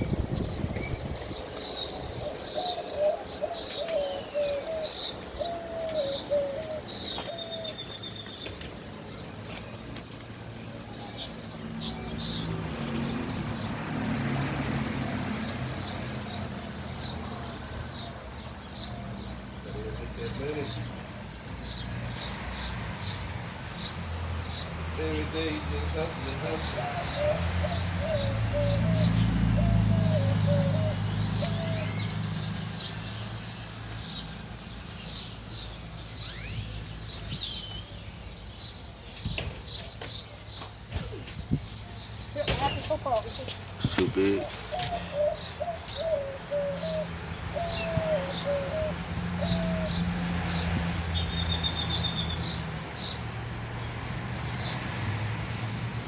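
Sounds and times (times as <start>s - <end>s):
small birds chirping: 0.0s - 55.7s
dove cooing: 2.2s - 7.9s, 26.7s - 32.2s, 44.0s - 50.0s.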